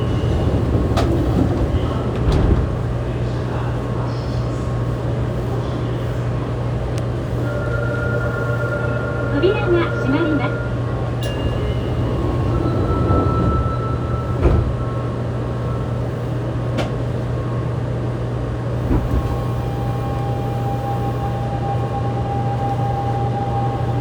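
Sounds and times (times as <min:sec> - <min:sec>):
train doors shutting thud: 0:00.0 - 0:03.5, 0:11.2 - 0:17.6, 0:18.6 - 0:20.5
train cabin hum: 0:00.0 - 0:24.0.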